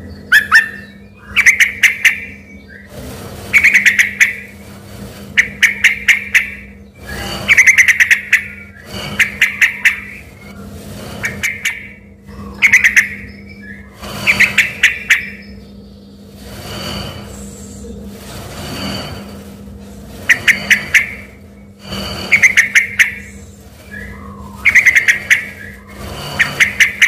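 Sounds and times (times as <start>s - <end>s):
songbird singing rapid phrases: 0.0s - 2.9s, 3.5s - 4.5s, 5.4s - 10.5s, 11.2s - 16.2s, 22.3s - 27.0s.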